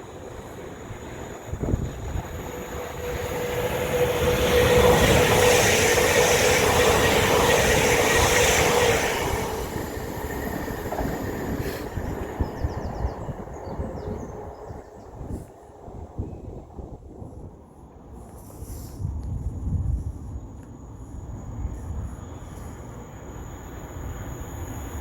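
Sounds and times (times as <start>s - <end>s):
train passing at speed: 0.0s - 25.0s
steady high tone: 0.6s - 10.6s.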